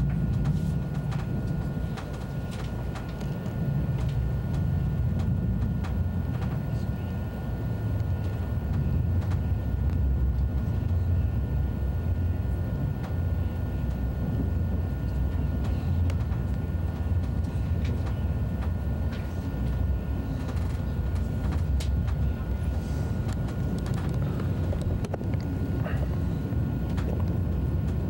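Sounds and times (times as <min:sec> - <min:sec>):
thin steady whine: 0:00.0 - 0:28.0
train rumble: 0:00.0 - 0:28.0
faint clicks: 0:23.2 - 0:25.9.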